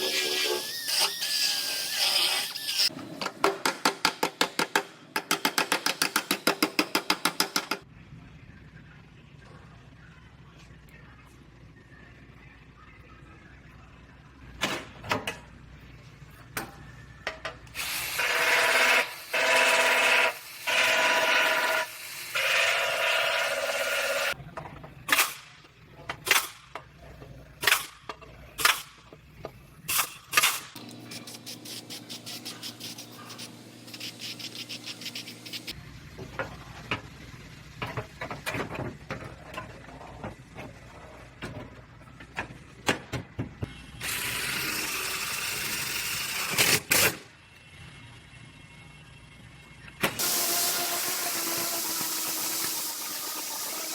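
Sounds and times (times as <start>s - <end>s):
power tool whirring: 17.8s - 24.4s, 50.0s - 53.9s.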